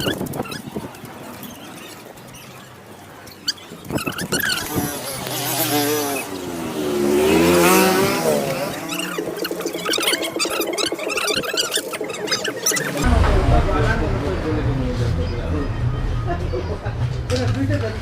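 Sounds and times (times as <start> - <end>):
vehicle engine passing by: 4.4 - 10.6, 12.9 - 17.4.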